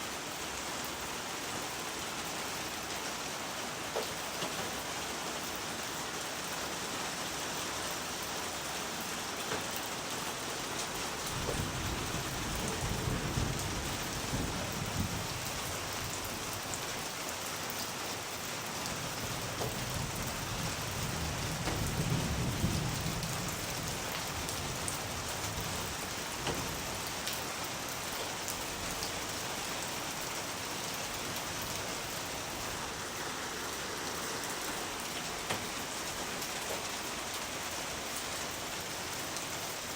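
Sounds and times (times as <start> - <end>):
steady rain falling: 0.0 - 39.9
thunder rumbling: 11.1 - 16.5, 19.1 - 27.0.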